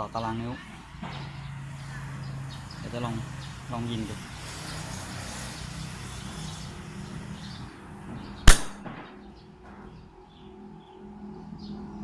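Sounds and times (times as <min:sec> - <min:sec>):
sharp pneumatic air gun shot: 0:08.5 - 0:09.0.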